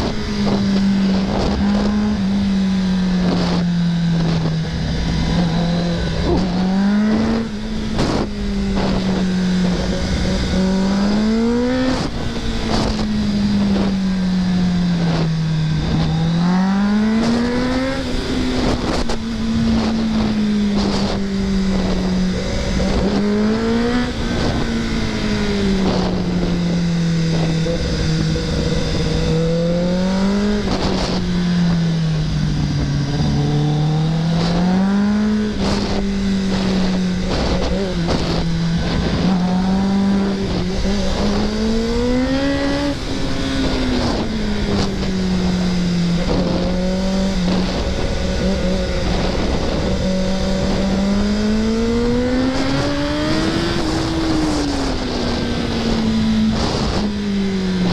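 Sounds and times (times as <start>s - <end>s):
motorcycle engine revving: 0.0s - 57.9s
wind rush: 0.0s - 57.9s.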